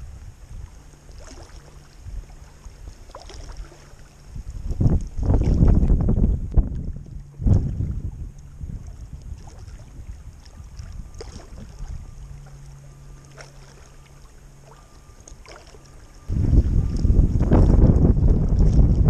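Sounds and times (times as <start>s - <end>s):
low steady hum: 0.0s - 19.0s
wind buffeting microphone: 2.0s - 12.5s, 16.2s - 19.0s.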